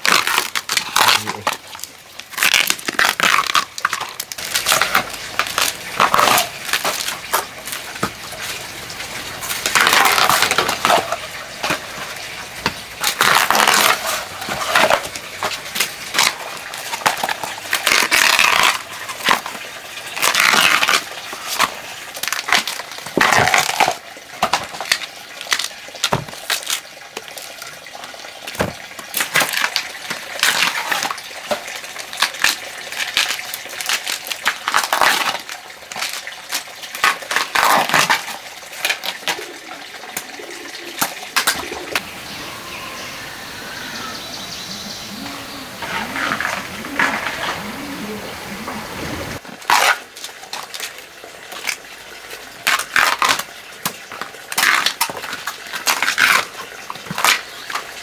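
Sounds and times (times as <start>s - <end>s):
dry plant material crunching: 0.0s - 39.5s, 41.4s - 58.0s
rustling tears: 44.8s - 50.0s.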